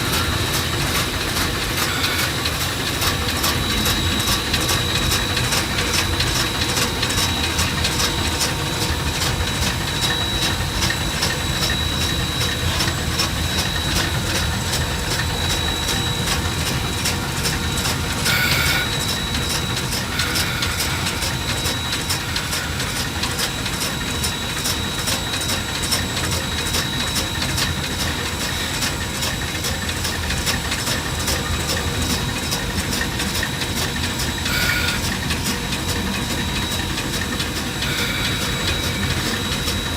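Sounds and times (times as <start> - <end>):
steady high whine: 0.0 - 39.9
steam locomotive clatter: 0.0 - 39.9.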